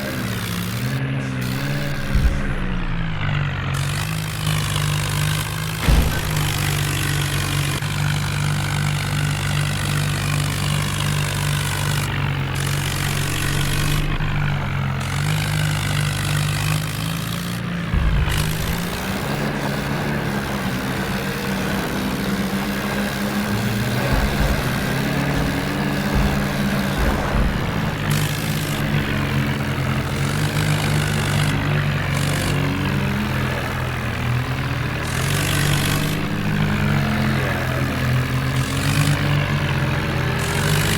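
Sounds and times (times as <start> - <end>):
diesel tractor engines running: 0.0 - 40.9.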